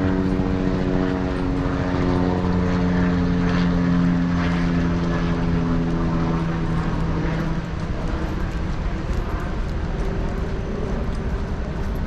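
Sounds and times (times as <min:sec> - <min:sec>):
propeller aircraft engine droning: 0:00.0 - 0:12.0.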